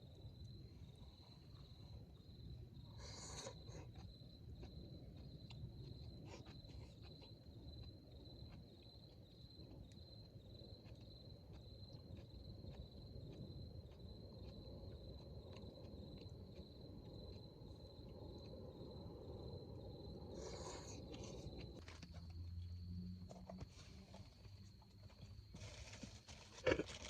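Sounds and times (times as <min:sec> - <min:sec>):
cricket trill: 0:00.0 - 0:27.0.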